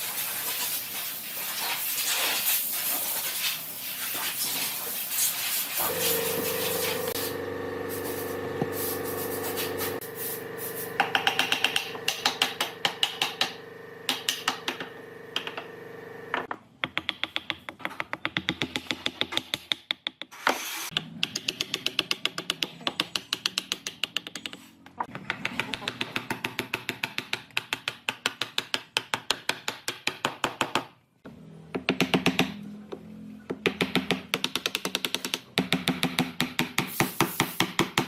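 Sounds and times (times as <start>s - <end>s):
hand tool strokes on wood: 5.7s - 11.6s
steady hum: 5.8s - 16.5s.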